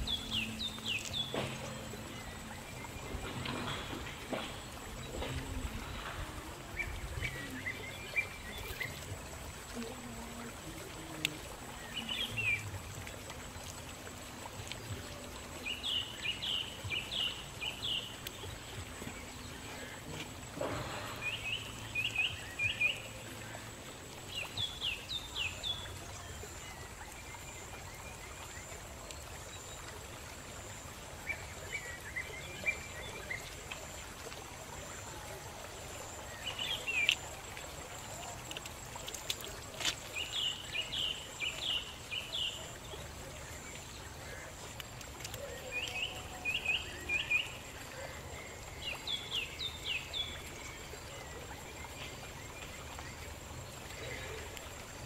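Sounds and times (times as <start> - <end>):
small birds chirping: 36.1 - 37.4.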